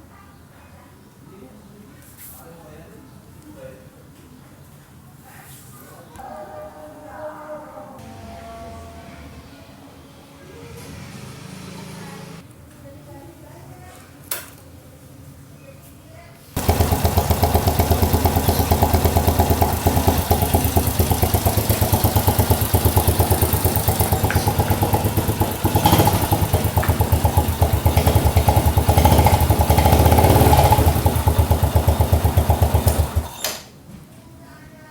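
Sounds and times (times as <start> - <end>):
motorcycle engine putter: 16.6 - 33.7.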